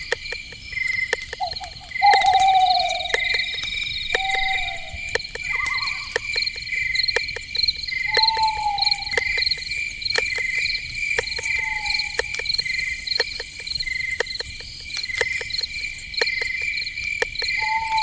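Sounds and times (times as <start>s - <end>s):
crickets chirping: 0.0s - 18.0s
sharp clicks: 0.0s - 18.0s
falling whistle-like call: 17.6s - 18.0s.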